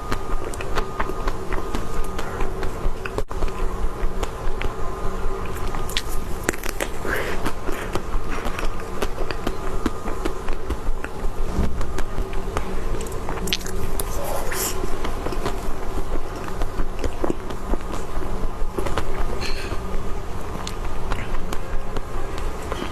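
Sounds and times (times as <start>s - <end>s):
steady droning hum: 0.0s - 22.9s
wet mouth clicks chewing: 5.4s - 11.2s, 11.9s - 18.2s.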